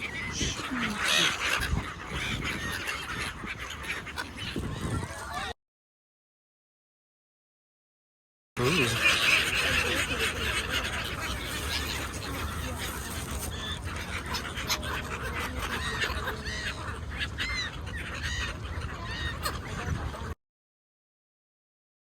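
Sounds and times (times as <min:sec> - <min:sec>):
gulls calling: 0:00.0 - 0:05.6, 0:08.6 - 0:20.4.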